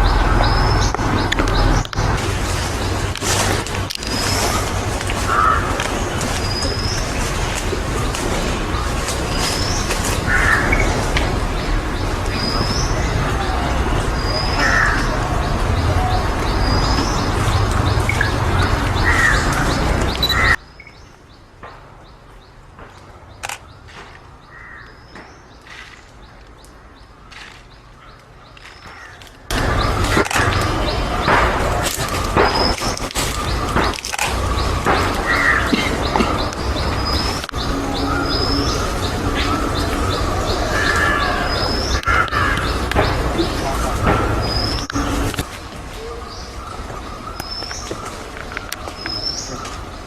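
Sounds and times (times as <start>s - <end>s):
loud dense din: 0.0s - 20.5s, 29.5s - 47.0s
small birds chirping: 0.0s - 50.0s
crows cawing: 4.5s - 6.9s, 9.0s - 11.1s, 14.4s - 15.3s, 18.9s - 20.6s, 24.5s - 25.0s, 28.8s - 31.2s, 33.4s - 45.2s.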